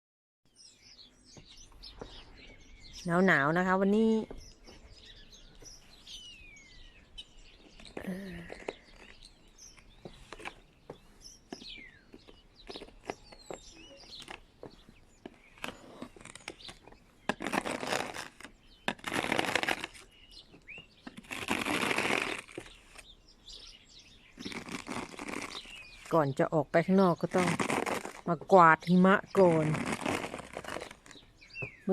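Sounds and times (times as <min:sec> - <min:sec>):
small birds chirping: 0:00.5 - 0:31.9.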